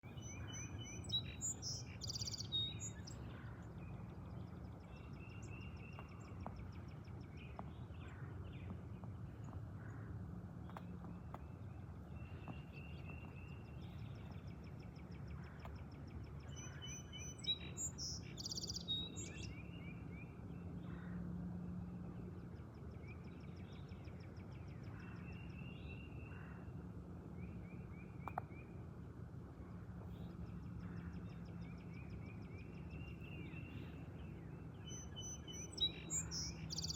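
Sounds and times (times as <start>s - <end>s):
low background rumble: 0.0s - 16.8s
small songbirds chirping: 0.0s - 21.2s, 22.1s - 36.9s.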